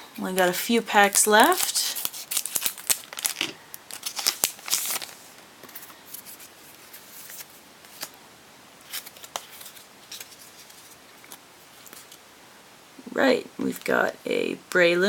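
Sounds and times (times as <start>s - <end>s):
foil wrapper crackling and tearing: 0.4s - 8.2s, 8.8s - 12.2s.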